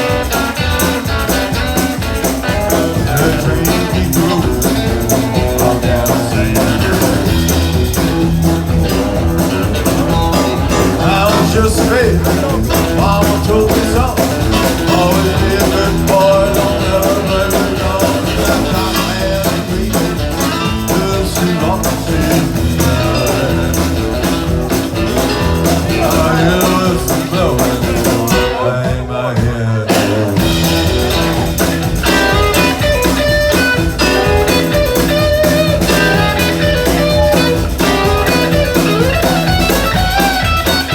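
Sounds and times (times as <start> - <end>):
person singing: 0.0 - 8.2, 8.9 - 40.9
electric guitar: 0.0 - 40.9
live blues-rock band: 0.0 - 40.9.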